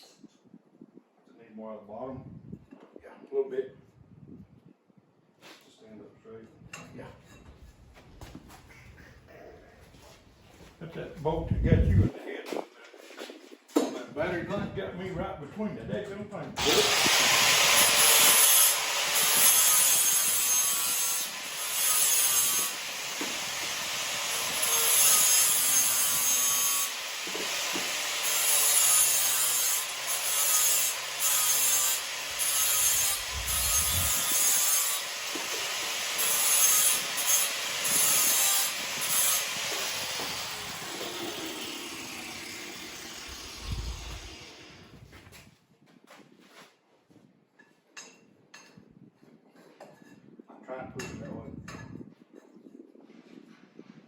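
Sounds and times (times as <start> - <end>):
power tool grinding steel: 16.6 - 45.0.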